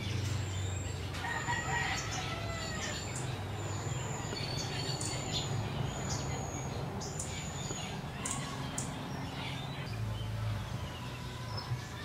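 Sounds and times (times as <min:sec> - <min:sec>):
sharp bird chips: 0:02.8 - 0:10.0.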